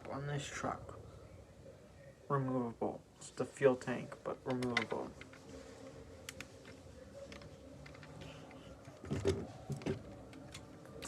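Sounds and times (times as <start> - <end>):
faint steady hum: 0.0 - 11.0
plastic parts clicking and clattering: 4.4 - 5.4, 6.2 - 11.0.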